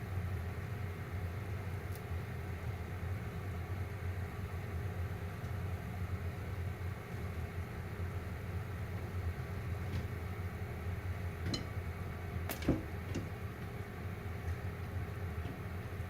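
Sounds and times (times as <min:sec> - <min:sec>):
microwave oven humming: 0:00.0 - 0:16.0
popcorn popping: 0:11.3 - 0:16.0.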